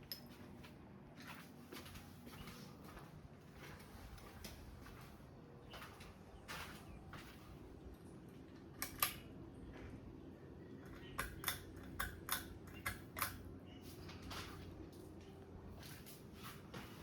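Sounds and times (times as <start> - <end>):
ceiling fan humming: 0.0 - 17.0
sharp clicks: 8.8 - 9.3, 10.8 - 13.5.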